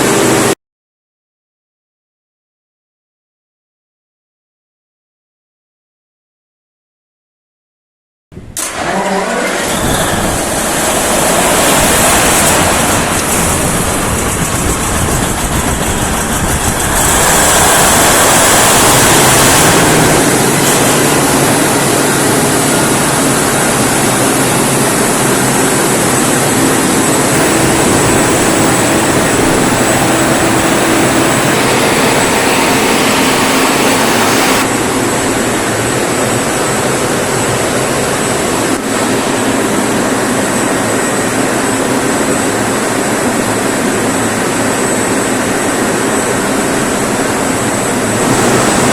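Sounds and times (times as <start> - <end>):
diesel generator running: 0.0 - 0.5, 8.6 - 48.9
thin high whine: 8.7 - 36.9, 47.9 - 48.9.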